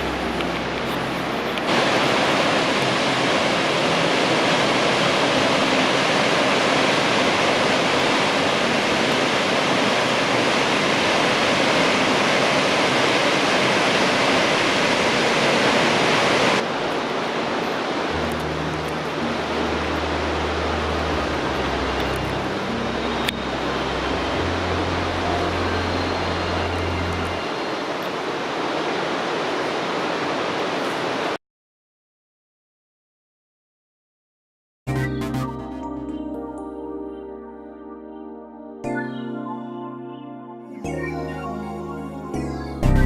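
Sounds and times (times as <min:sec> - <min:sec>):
waterfall roaring: 0:00.0 - 0:31.4
low hum: 0:18.1 - 0:27.9.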